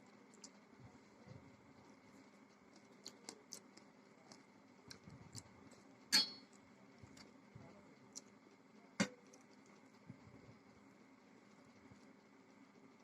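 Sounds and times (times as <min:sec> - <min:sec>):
chewing sounds: 0:00.2 - 0:01.2, 0:01.8 - 0:08.4
sharp clink: 0:06.1 - 0:06.5.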